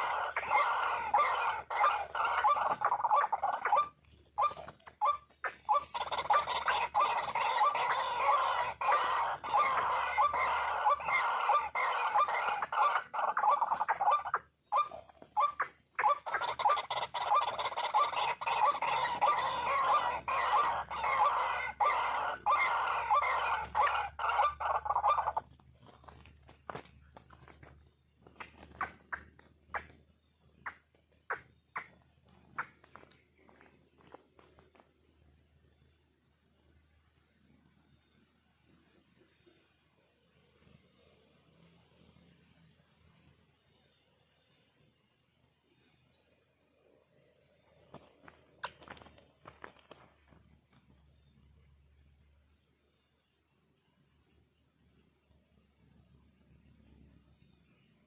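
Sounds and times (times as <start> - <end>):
bird clucking calls: 0.0 - 35.1, 47.5 - 51.0.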